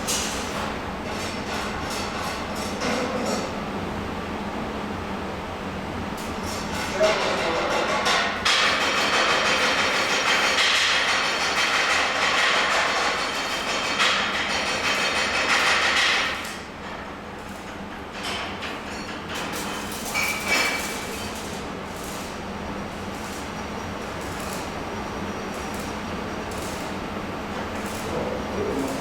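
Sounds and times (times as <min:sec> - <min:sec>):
welding hissing and crackling: 0:08.0 - 0:18.4, 0:19.3 - 0:29.0.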